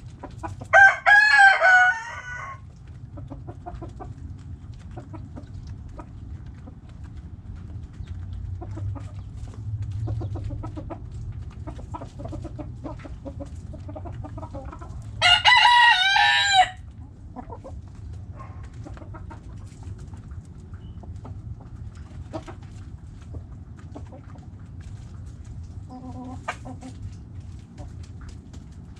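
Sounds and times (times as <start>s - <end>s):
hens clucking softly: 0.0s - 28.9s
low background rumble: 0.0s - 28.9s
rooster crowing: 0.7s - 2.7s, 15.2s - 16.8s.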